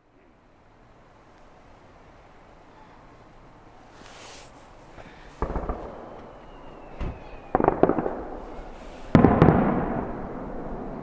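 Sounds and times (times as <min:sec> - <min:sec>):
firework cracks: 0:03.9 - 0:11.0
firework bang: 0:05.4 - 0:11.0.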